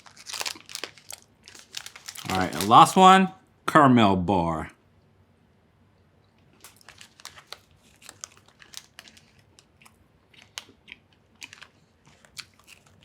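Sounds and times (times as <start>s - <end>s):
crunchy chewing clicks: 6.4s - 13.0s.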